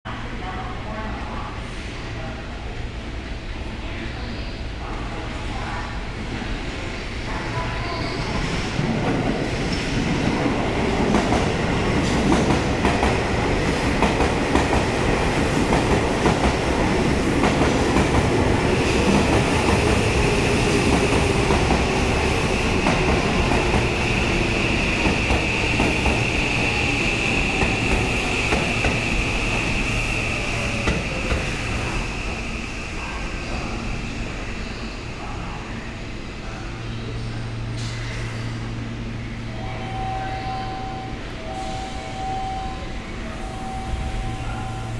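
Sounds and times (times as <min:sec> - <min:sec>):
high squeal of train braking: 0:39.6 - 0:44.9.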